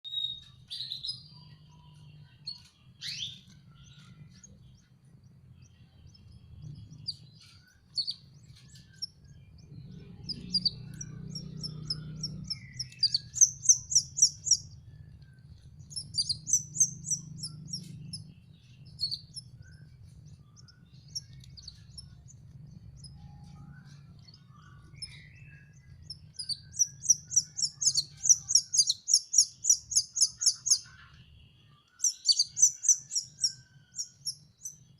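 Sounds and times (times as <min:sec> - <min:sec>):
canary chicks begging chirps: 0:00.1 - 0:34.9.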